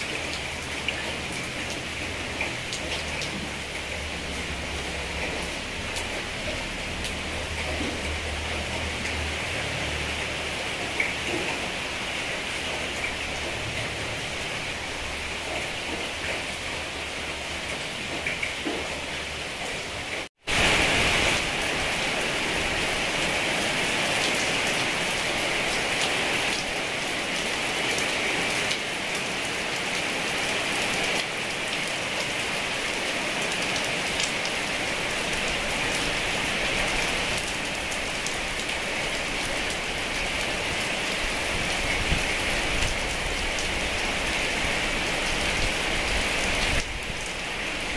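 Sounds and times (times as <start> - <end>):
fine water drips: 0.0 - 20.3
heavy rain falling: 0.0 - 47.9.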